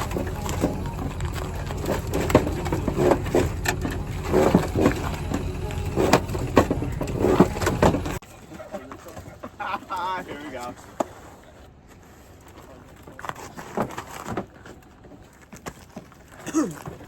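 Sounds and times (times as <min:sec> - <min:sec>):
low engine rumble: 0:00.0 - 0:08.2.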